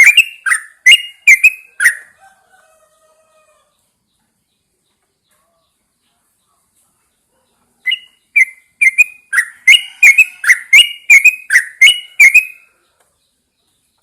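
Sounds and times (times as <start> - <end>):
bird singing whistled notes: 0.0 - 2.2, 7.8 - 12.8.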